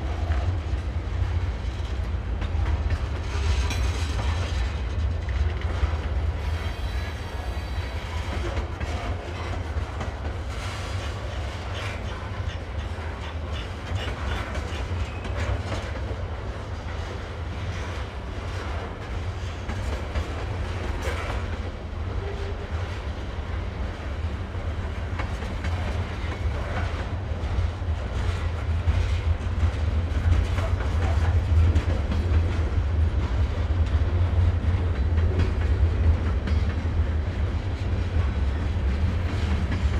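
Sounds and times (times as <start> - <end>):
train rumbling past: 0.0 - 39.9
wheels clacking over rail joints: 0.1 - 22.6.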